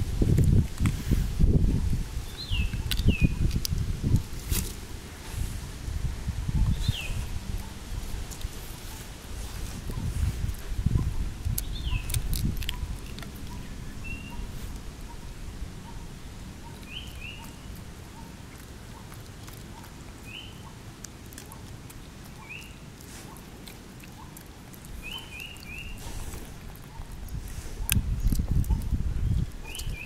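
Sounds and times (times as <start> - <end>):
low rumble on microphone: 0.0 - 18.5, 24.8 - 30.0
birds chirping: 1.7 - 4.3, 6.5 - 9.1, 9.7 - 30.0.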